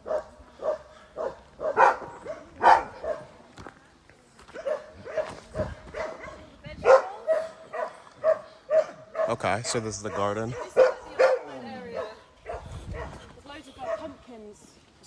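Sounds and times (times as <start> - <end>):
dog barking and whining: 1.6 - 3.2, 6.0 - 9.4, 10.1 - 11.6.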